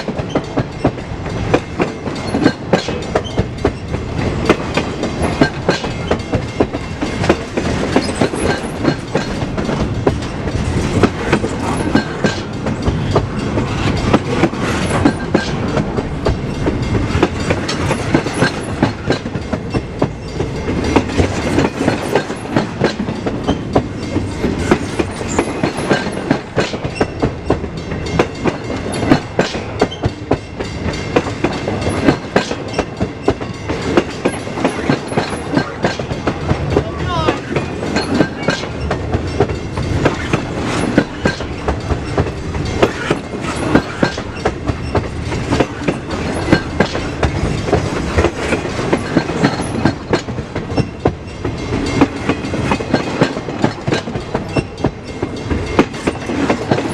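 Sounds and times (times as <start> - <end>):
freight train rumble: 0.0 - 56.9
train wheels clacking over rails: 0.0 - 56.9.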